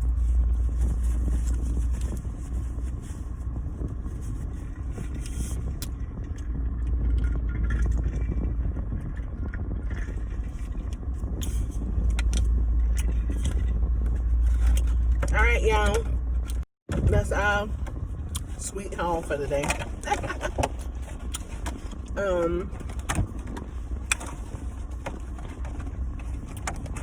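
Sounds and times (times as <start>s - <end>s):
rustles: 0.0s - 5.8s
low rumble in car cabin: 0.0s - 27.0s.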